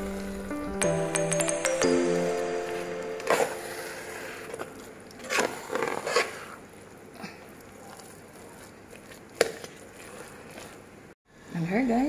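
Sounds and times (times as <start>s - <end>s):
spoon stirring sticky rice: 4.2s - 11.1s.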